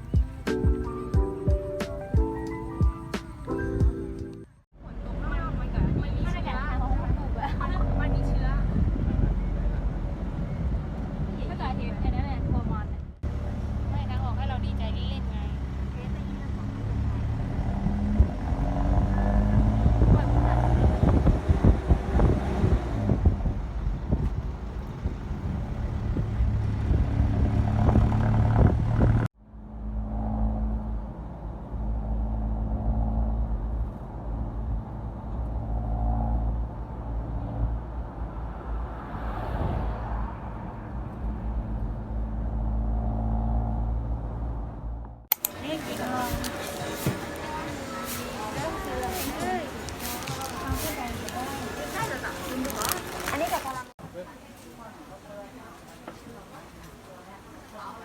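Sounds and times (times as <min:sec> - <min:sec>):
motor vehicle humming: 0:00.0 - 0:54.0
wind buffeting microphone: 0:05.3 - 0:13.1, 0:17.6 - 0:29.3.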